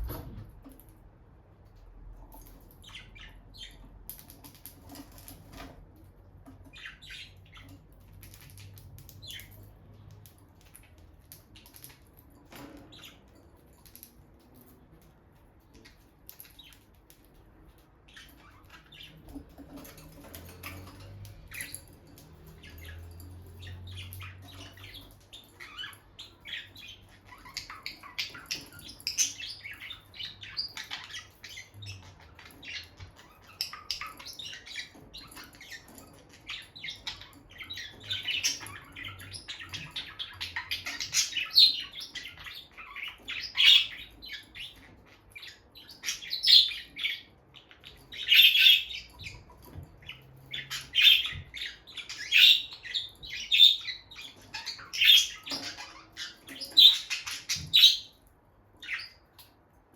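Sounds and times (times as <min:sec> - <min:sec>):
lovebirds chirping: 0:00.0 - 0:59.9.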